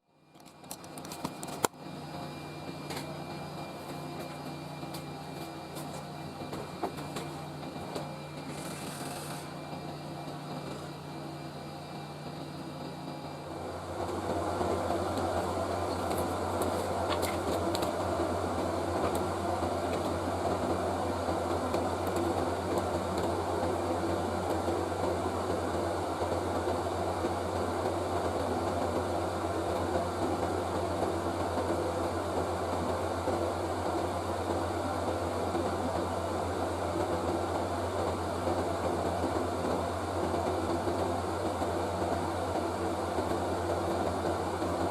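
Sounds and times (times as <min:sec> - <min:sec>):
electric blower whirring: 0:03.9 - 0:25.2.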